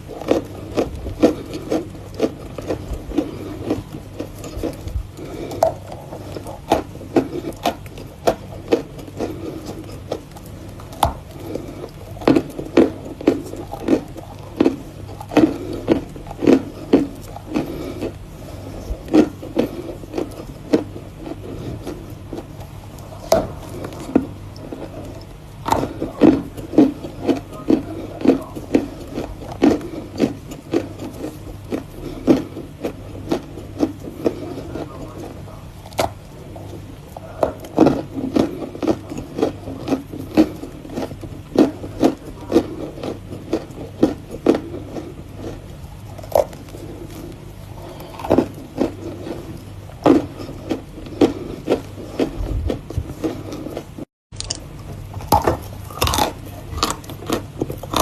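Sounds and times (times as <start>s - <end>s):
chewing chalk crunching: 0.0s - 58.0s.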